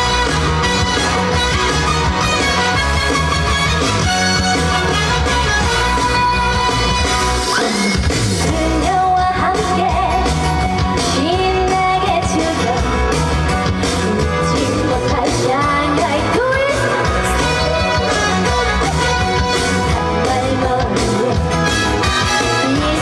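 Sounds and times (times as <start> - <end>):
loud band accompaniment: 0.0 - 23.0
woman singing: 7.6 - 13.1, 13.9 - 23.0.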